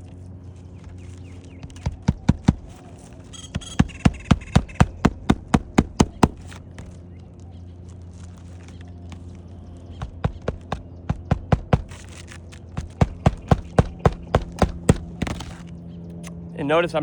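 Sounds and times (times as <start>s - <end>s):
steady low hum: 0.0s - 17.0s
hammer striking roofing nails: 1.6s - 7.0s, 10.0s - 15.6s.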